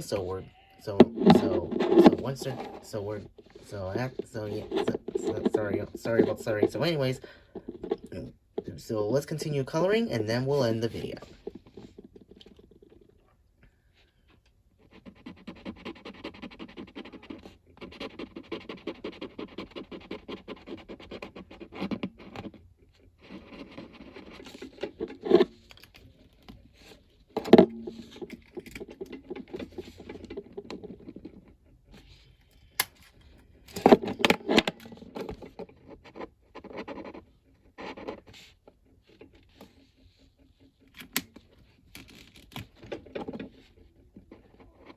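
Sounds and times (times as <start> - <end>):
drawing tool scratching paper: 0.0 - 8.0, 14.8 - 25.7.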